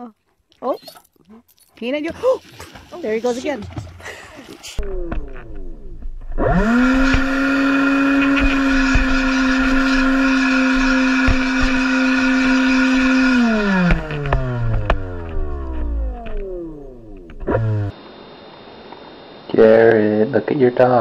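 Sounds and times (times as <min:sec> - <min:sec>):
leaf blower motor whine: 0:04.8 - 0:19.8.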